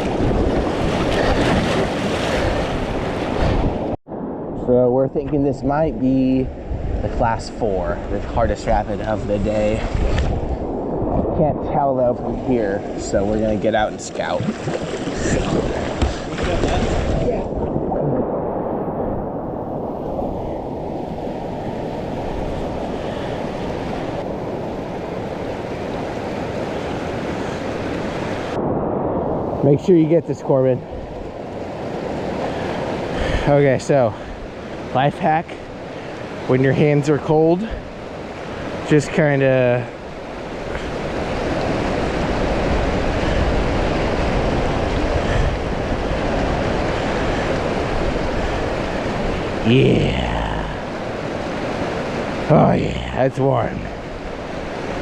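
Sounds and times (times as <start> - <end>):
whitewater rushing: 31.6 - 55.0.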